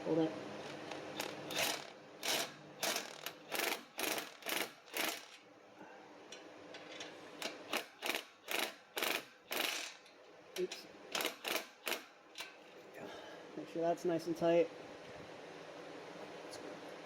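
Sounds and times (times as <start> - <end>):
ratchet wrench rattling: 0.6 - 5.4, 6.7 - 12.7.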